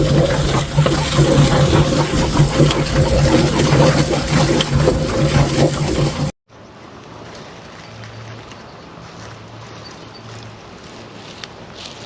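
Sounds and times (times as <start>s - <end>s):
motor humming: 0.0s - 6.3s
spraying water: 0.0s - 6.4s.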